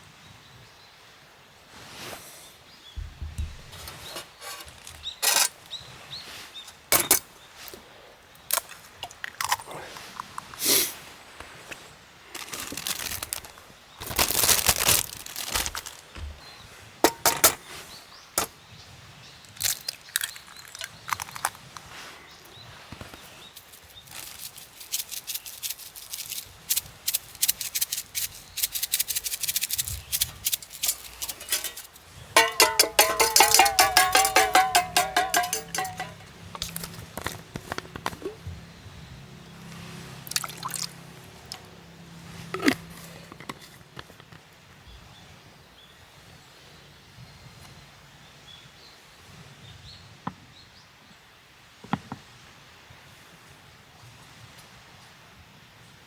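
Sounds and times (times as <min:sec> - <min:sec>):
sharp clicks and knocks: 0:03.0 - 0:04.9, 0:29.3 - 0:38.5
short rustles: 0:03.0 - 0:05.5, 0:29.8 - 0:38.6.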